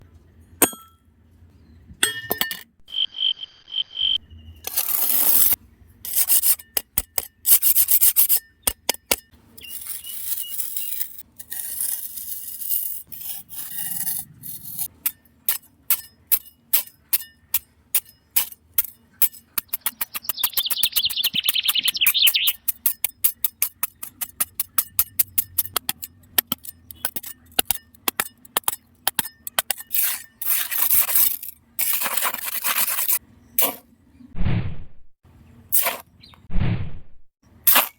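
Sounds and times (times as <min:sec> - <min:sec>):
scraping and rubbing of small pieces: 0:04.6 - 0:08.8, 0:09.6 - 0:33.8.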